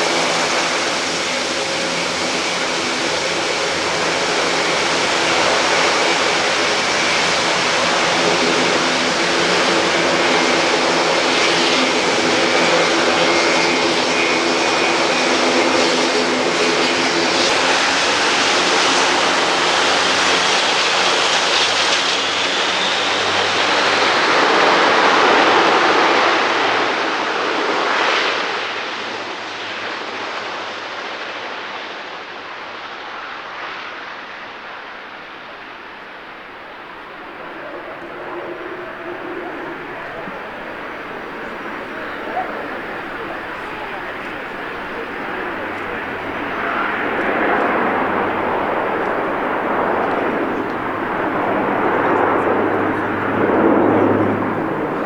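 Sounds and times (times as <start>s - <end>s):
aircraft rushing noise: 0.0s - 20.7s, 36.2s - 55.0s
turboprop engines humming: 0.0s - 21.8s, 36.1s - 55.0s.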